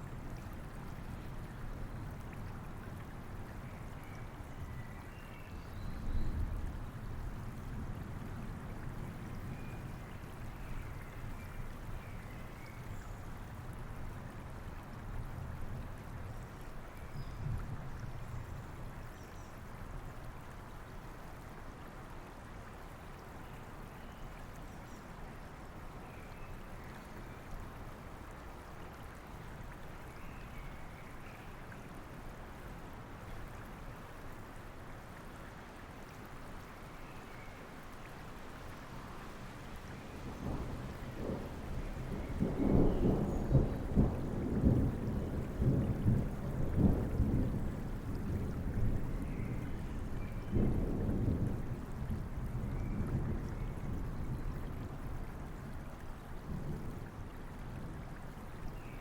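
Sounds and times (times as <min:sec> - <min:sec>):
steady rainfall: 0:00.0 - 0:59.0
thunder rumbling: 0:40.4 - 0:49.1.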